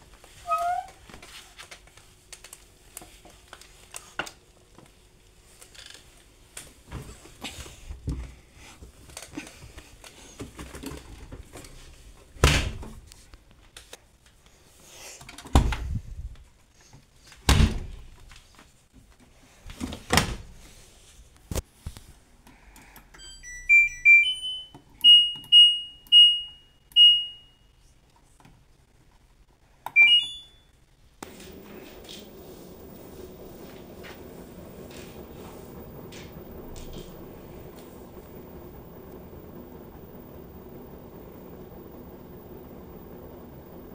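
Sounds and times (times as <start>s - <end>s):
short electronic beeps: 30.0s - 30.7s.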